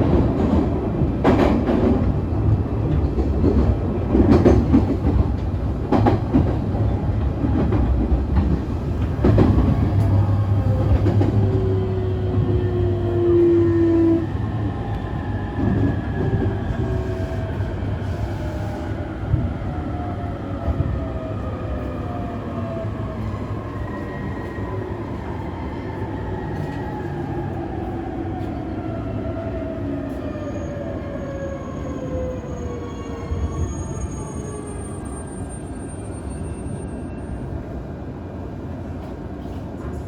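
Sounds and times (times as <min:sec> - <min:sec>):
train running rumble: 0:00.0 - 0:14.9.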